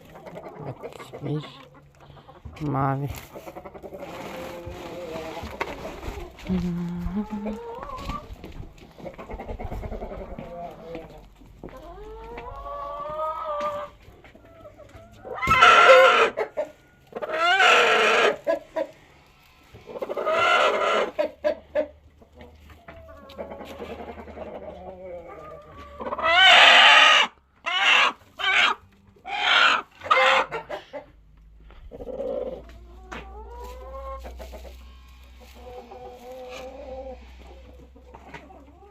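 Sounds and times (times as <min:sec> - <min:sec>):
chickens clucking: 0:00.0 - 0:38.9
chickens squawking: 0:00.0 - 0:38.9.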